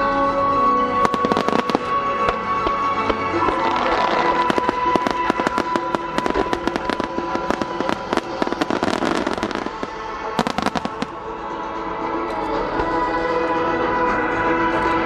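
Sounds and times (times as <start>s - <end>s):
music over loudspeakers: 0.0s - 15.0s
fireworks bangs and crackles: 1.0s - 11.2s.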